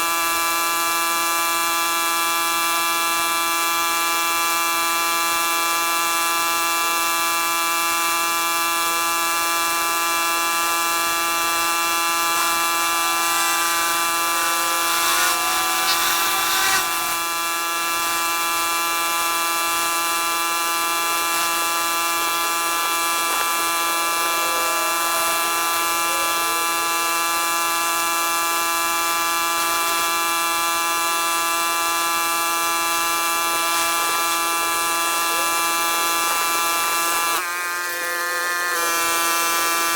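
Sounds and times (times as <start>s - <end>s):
pressure washer whine: 0.0s - 39.9s
water spray hissing: 10.9s - 18.2s.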